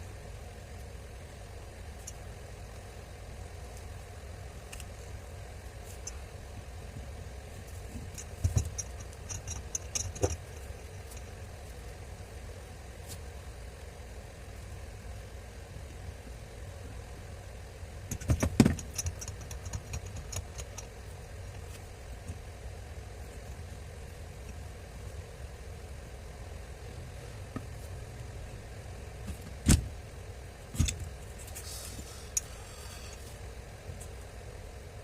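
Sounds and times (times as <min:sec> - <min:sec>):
steady low hum: 0:00.0 - 0:35.0
clicks and knocks of small parts: 0:07.9 - 0:11.3, 0:18.1 - 0:22.4.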